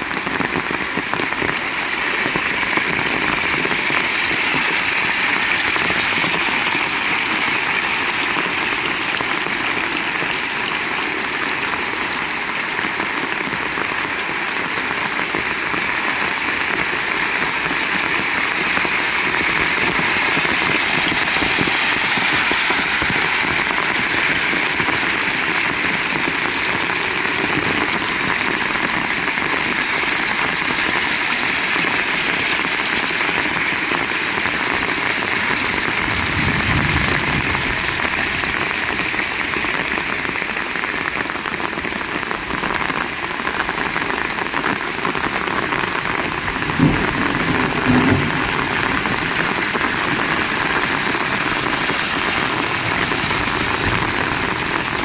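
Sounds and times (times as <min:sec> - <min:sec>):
heavy rain pouring: 0:00.0 - 0:55.0
low rumble: 0:35.4 - 0:40.3.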